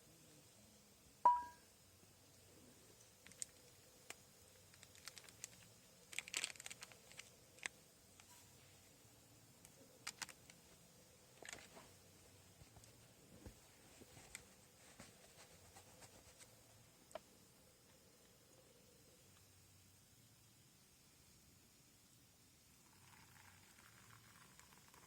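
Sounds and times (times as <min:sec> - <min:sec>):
sharp ringing clink: 0:01.3 - 0:01.6.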